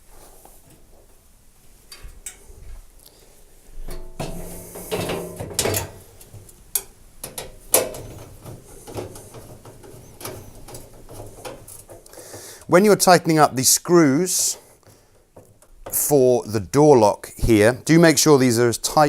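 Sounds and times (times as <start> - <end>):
panel scraping: 3.9 - 6.6, 7.3 - 12.6
sharp clicks and knocks: 3.9 - 12.7, 14.8 - 16.2.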